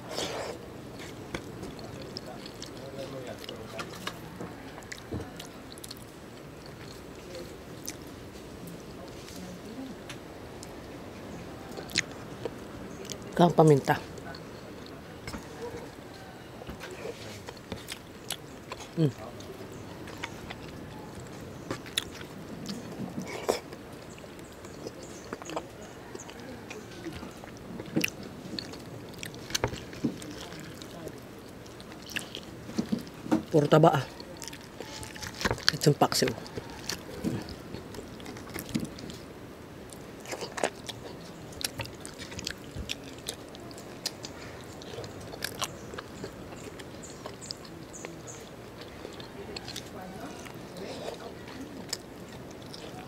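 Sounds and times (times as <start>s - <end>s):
person chewing with mouth smacks: 0.0s - 9.4s, 11.7s - 39.3s, 39.9s - 53.0s
fingers picking at food: 16.7s - 39.2s.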